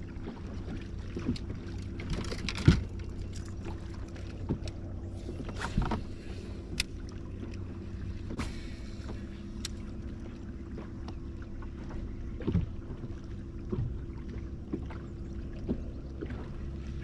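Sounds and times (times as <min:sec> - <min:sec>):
small boat motor humming: 0:00.0 - 0:17.0.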